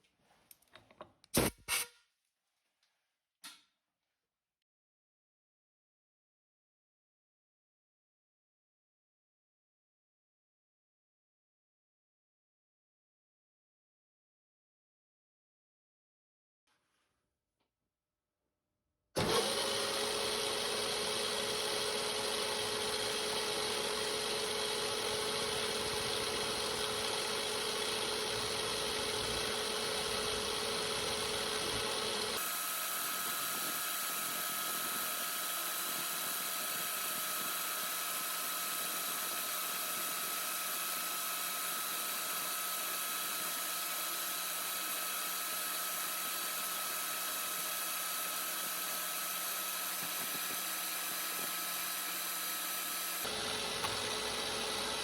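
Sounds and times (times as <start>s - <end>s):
milling machine spindle whine: 47.5s - 55.0s.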